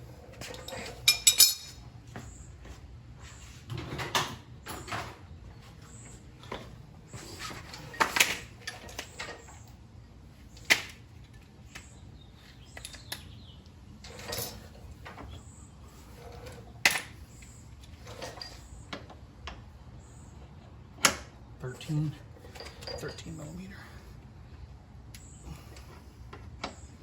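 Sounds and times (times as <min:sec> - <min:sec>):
metal hand tools clanking: 0:01.0 - 0:01.8.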